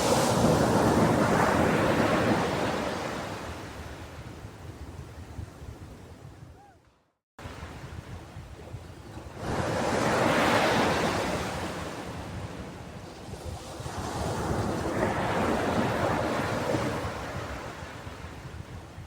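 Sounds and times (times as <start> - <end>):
sea waves washing onto shore: 0.0 - 3.7.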